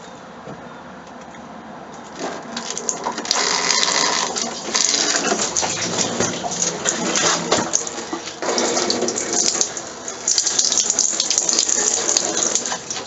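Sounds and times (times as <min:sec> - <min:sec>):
stream of urine splashing: 0:02.6 - 0:13.0.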